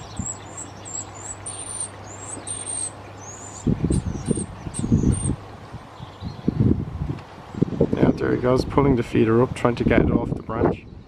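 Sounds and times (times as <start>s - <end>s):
high-pitched songbird calls: 0.0s - 6.7s
low rumbling noise: 0.0s - 11.0s.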